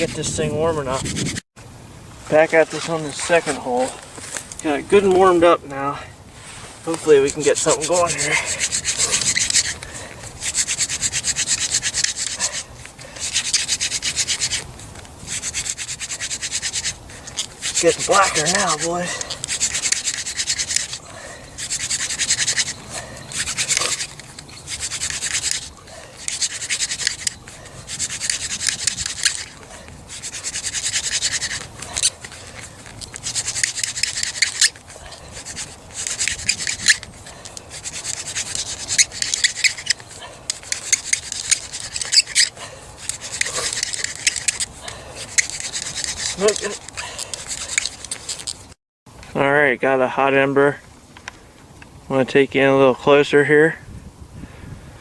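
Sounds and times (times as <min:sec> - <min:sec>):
hand drill rubbing wood: 0:00.0 - 0:01.4, 0:02.3 - 0:05.8, 0:06.4 - 0:48.8.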